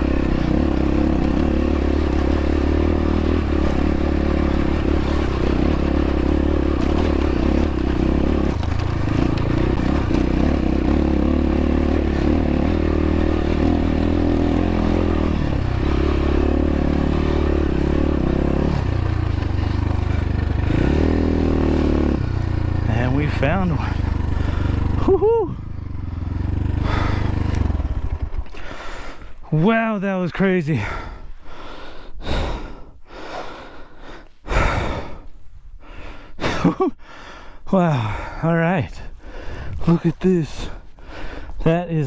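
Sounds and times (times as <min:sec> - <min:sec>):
dirt bike engine under load: 0:00.0 - 0:30.0.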